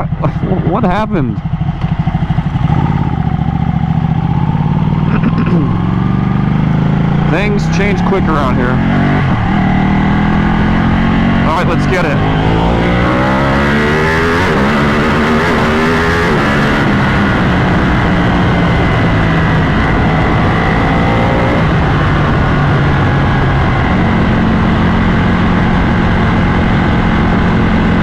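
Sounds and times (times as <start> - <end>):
motorcycle engine accelerating: 0.0 - 28.0
wind rushing: 7.0 - 13.7.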